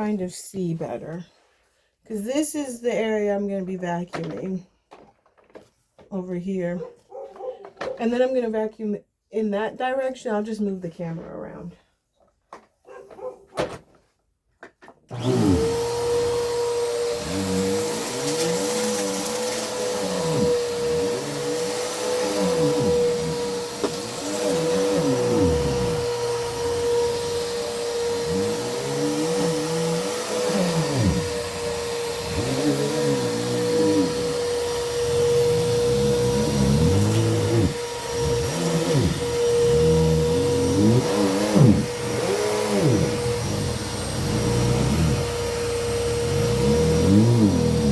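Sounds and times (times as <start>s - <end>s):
vacuum cleaner running: 15.1s - 47.9s.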